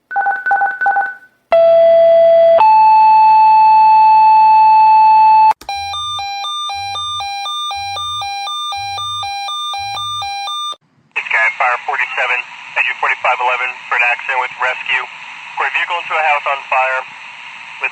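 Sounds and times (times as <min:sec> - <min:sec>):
two-tone page: 0:00.1 - 0:01.3.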